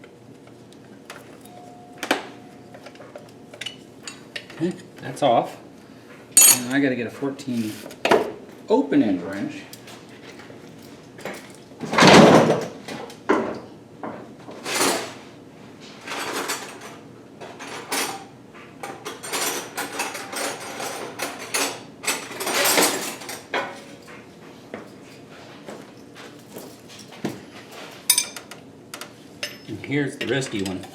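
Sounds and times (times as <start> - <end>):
metal wrenches clinking: 6.4 - 6.8, 28.1 - 28.4.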